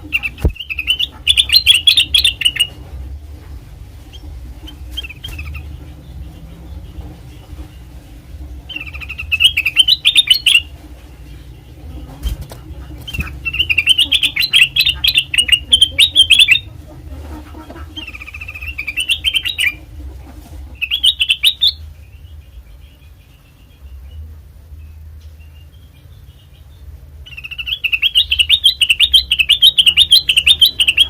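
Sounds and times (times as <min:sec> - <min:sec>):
bulbul chattering chirps: 0:00.0 - 0:02.8, 0:08.7 - 0:10.7, 0:11.3 - 0:16.8, 0:25.4 - 0:31.0
steady low hum: 0:00.0 - 0:31.0.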